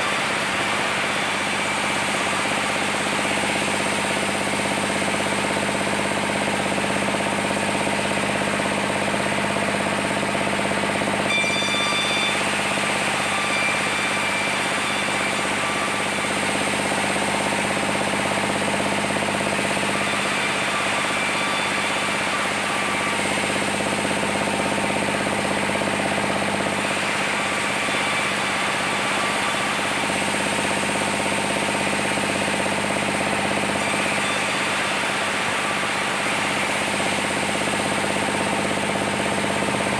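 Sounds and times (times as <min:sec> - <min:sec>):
sawmill machinery hum: 0:00.0 - 0:39.9
high-pitched whine: 0:11.2 - 0:16.3.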